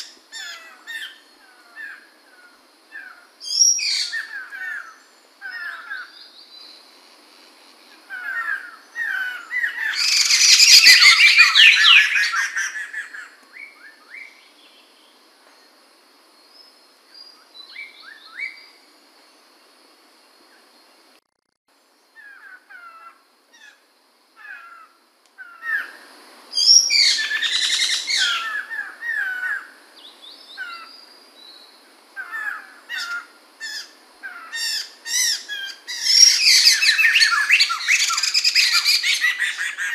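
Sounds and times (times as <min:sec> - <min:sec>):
loud rapid bird song phrases: 0:08.5 - 0:13.2, 0:34.5 - 0:39.9.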